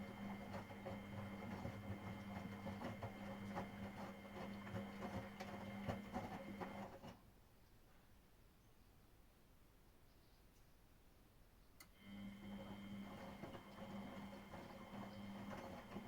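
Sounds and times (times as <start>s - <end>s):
washing machine motor hum: 0.0s - 7.2s, 11.9s - 16.0s.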